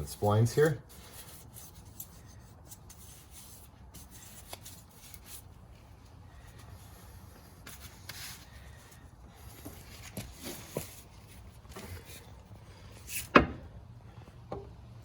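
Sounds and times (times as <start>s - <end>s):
hands rubbing and handling metal part: 0.0s - 8.5s.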